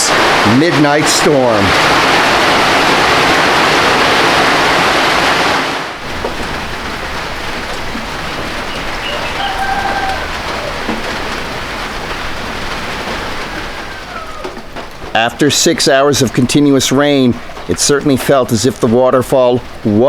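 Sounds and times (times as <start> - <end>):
heavy rain on a tin roof: 0.0 - 20.0
softer steady rainfall: 0.0 - 20.0
faint call: 6.0 - 15.4.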